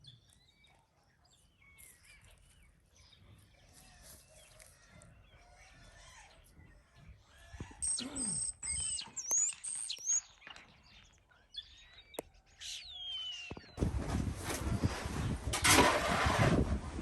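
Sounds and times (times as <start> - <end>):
small songbird singing: 5.1 - 13.8.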